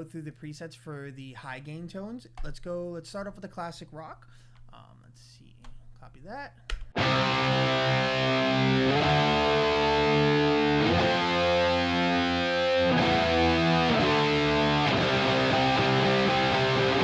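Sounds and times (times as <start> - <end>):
distorted electric guitar chords: 7.0 - 17.0.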